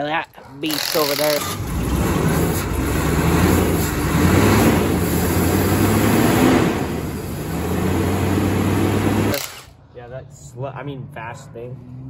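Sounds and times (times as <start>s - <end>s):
engine droning: 0.8s - 9.7s.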